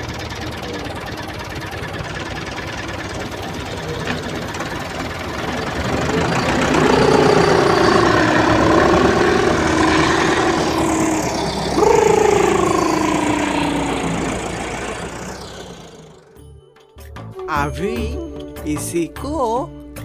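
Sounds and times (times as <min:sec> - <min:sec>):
engine running with knocking beat: 0:00.0 - 0:16.4
long wavering tone: 0:04.8 - 0:16.4
tone falling in pitch: 0:06.0 - 0:16.3.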